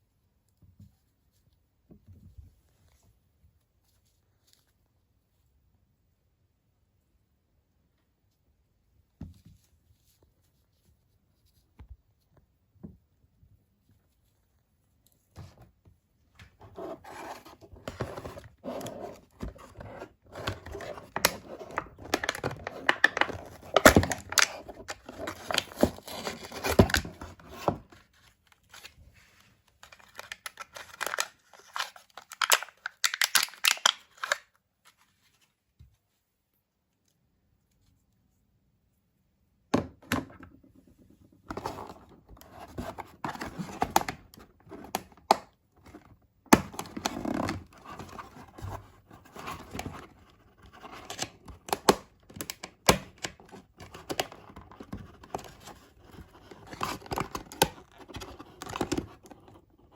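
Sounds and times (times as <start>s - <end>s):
packaging tearing and crinkling: 20.5s - 27.2s, 29.8s - 34.5s.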